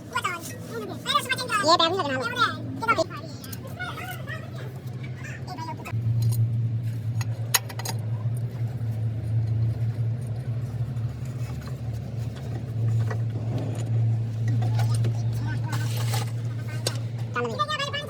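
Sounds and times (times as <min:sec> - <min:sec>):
diesel truck engine running: 0:00.0 - 0:18.0.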